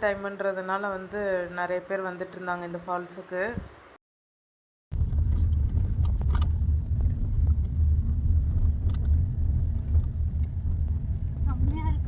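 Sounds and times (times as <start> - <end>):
car driving on road: 5.0 - 12.0.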